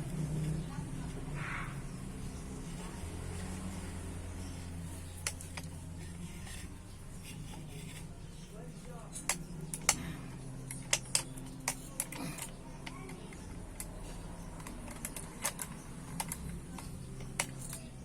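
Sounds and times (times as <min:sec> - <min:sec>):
steady low hum: 0:00.0 - 0:18.0
metal parts clicking and knocking: 0:04.5 - 0:08.1, 0:09.0 - 0:18.0.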